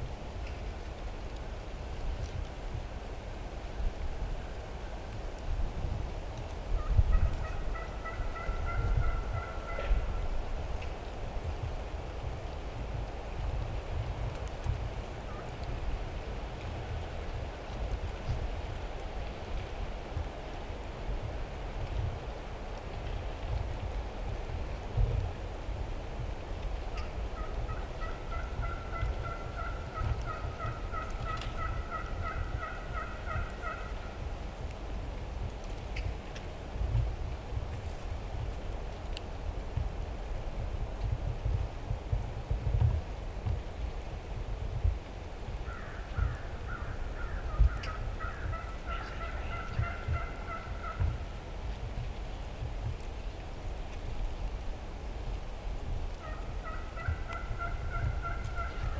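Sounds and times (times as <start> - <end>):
wind rumble on microphone: 0.0 - 58.9
turkey yelping: 7.5 - 10.0, 27.4 - 33.9, 48.2 - 51.0, 56.2 - 58.9.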